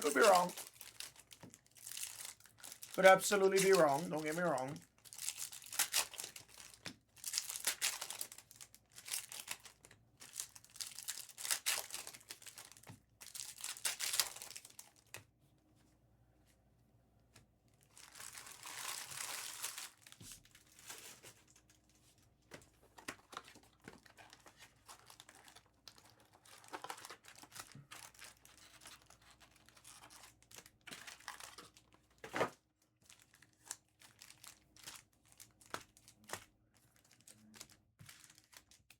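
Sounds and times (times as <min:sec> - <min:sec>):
wrappers tearing and crinkling: 0:00.0 - 0:15.2, 0:17.8 - 0:21.7, 0:23.0 - 0:32.0, 0:33.0 - 0:38.9.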